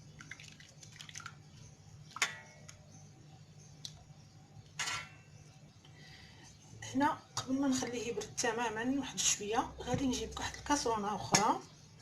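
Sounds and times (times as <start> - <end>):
low steady hum: 0.0 - 12.0
cookware and utensils clicking: 4.8 - 5.2.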